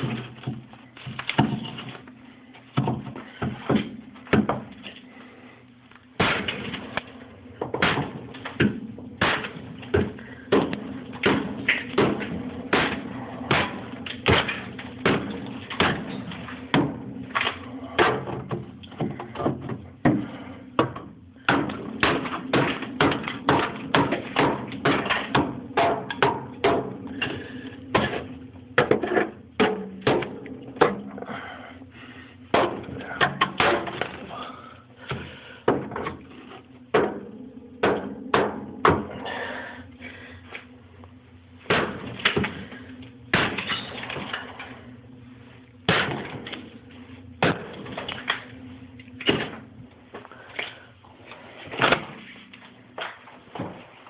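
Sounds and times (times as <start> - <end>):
steady low hum: 0.0 - 54.0
hammer knocking and cracking ice: 7.7 - 27.3.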